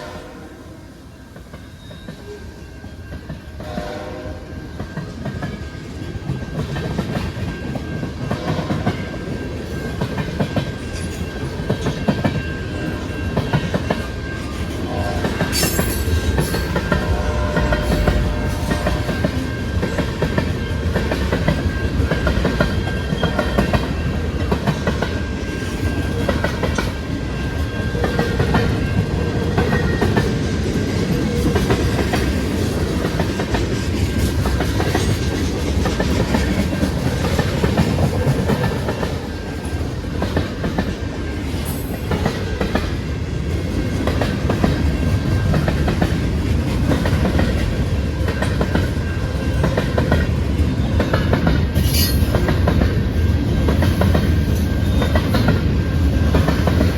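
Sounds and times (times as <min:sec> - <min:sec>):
train wheels clicking over rail joints: 0:04.8 - 0:56.9.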